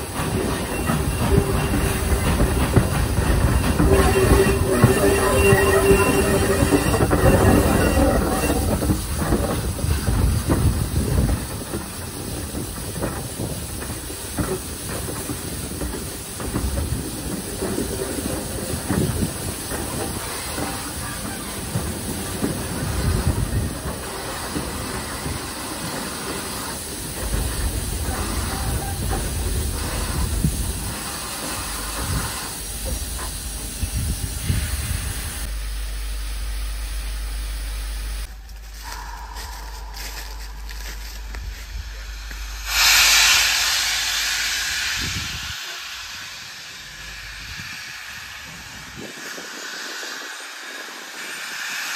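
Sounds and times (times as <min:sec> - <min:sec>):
wheel squeal: 0:00.0 - 0:11.4
steam locomotive hissing: 0:00.0 - 0:51.9.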